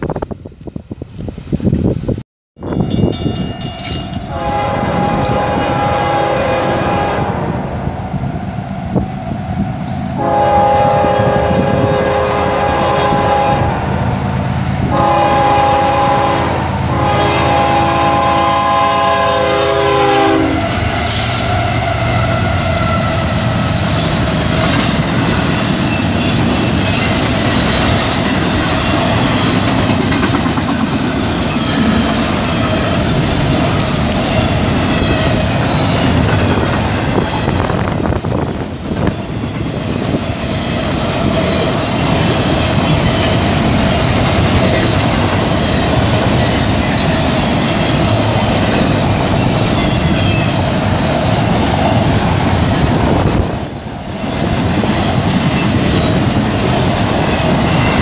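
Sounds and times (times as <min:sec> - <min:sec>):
freight train rumble and wheel clatter: 0:00.0 - 0:58.0
locomotive air horn: 0:04.3 - 0:07.4, 0:10.2 - 0:13.8, 0:14.9 - 0:21.7.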